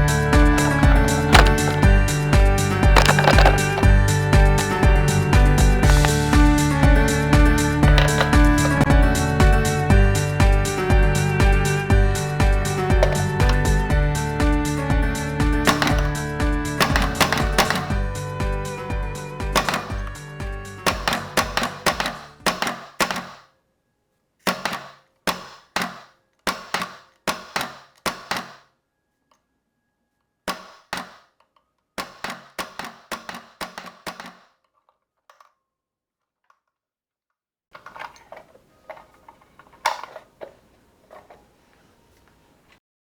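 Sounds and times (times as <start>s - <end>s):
pneumatic screwdriver firing: 0.5s - 1.9s, 3.0s - 3.9s, 7.9s - 8.8s, 13.0s - 13.7s, 15.7s - 16.2s, 16.8s - 18.0s, 19.6s - 20.1s, 20.9s - 23.5s, 24.5s - 28.6s.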